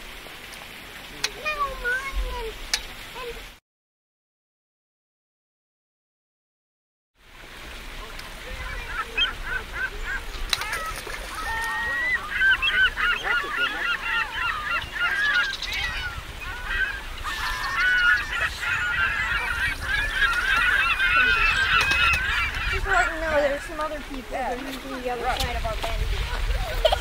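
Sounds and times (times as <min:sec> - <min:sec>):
geese honking: 0:08.6 - 0:24.5.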